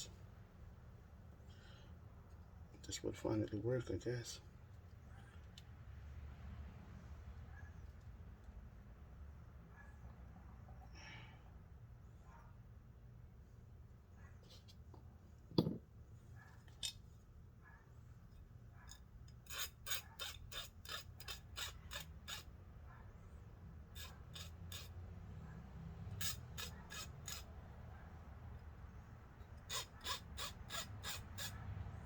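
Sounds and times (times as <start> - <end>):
hand tool rasping strokes: 19.3 - 22.6, 23.8 - 25.0, 26.0 - 27.8, 29.4 - 32.0.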